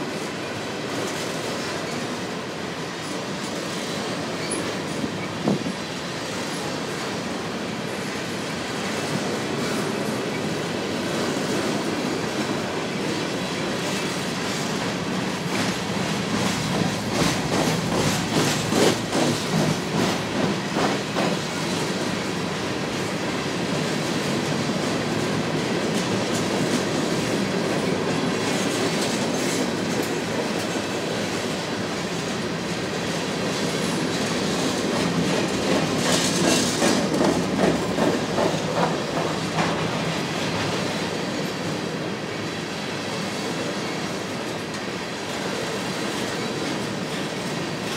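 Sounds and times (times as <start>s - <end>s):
steel wheels rumbling on rail: 0.0s - 47.9s
wheels clickety-clack: 13.8s - 22.2s, 23.0s - 31.6s, 33.4s - 41.8s.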